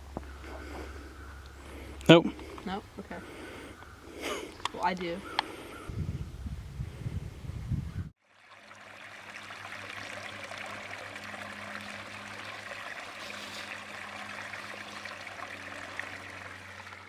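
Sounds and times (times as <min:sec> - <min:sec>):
running water trickling: 0:08.2 - 0:17.0.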